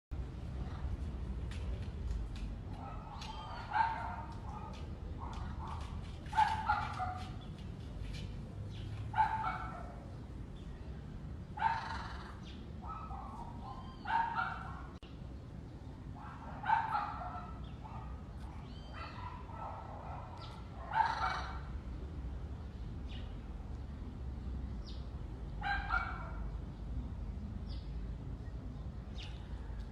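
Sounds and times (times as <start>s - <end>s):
animal yelping: 11.6s - 12.4s, 20.9s - 21.6s.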